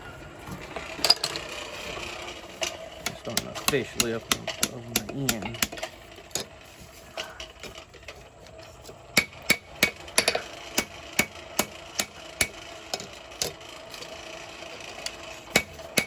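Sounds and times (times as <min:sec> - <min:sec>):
hammer striking steel on anvil: 0:09.2 - 0:12.6, 0:15.5 - 0:16.0.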